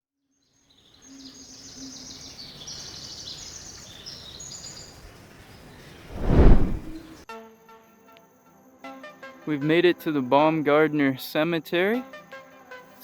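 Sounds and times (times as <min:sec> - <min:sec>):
loud rushing whoosh: 0:06.1 - 0:07.0.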